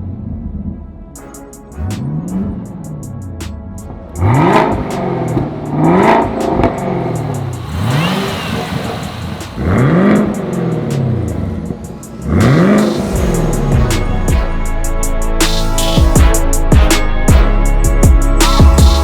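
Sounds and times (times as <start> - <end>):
car engine revving: 1.6 - 17.3
supercharger whine: 4.0 - 14.4.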